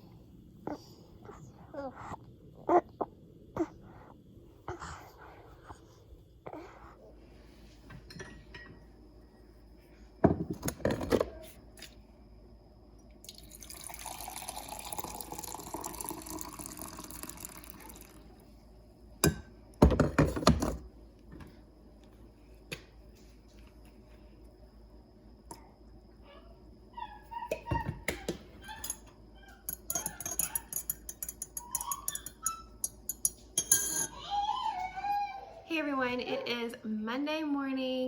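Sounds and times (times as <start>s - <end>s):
water running from a tap: 13.3s - 18.2s.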